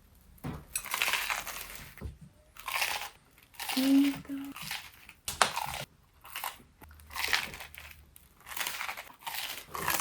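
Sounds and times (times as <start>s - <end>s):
person chewing crunchy sandwich: 0.8s - 10.0s.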